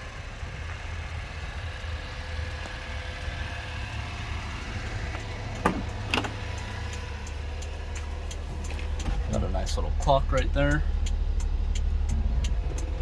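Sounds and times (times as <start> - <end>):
vehicle engine idling: 0.0 - 13.0
sharp clicks: 5.2 - 13.0.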